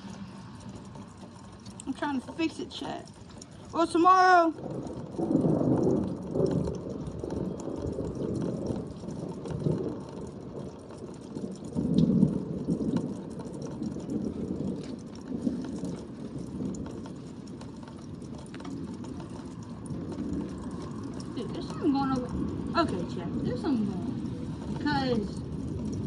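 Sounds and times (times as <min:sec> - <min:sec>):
low noisy rumble: 0:00.0 - 0:11.0
drops ticking: 0:00.0 - 0:26.0
rain falling: 0:00.0 - 0:26.0.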